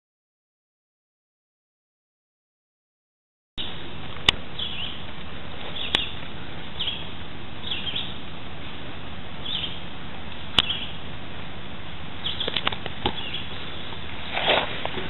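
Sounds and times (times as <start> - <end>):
steady background hiss: 3.6 - 15.0
bird chirping: 4.5 - 5.0, 5.6 - 8.2, 9.4 - 9.9, 10.5 - 11.0, 12.2 - 14.0.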